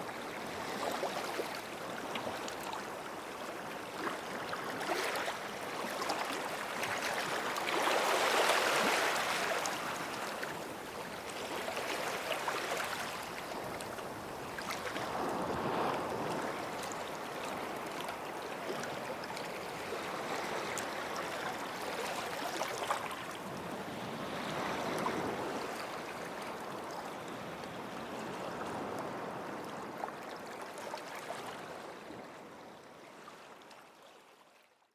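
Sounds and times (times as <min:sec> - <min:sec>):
small waves washing onto beach: 0:00.0 - 0:33.6.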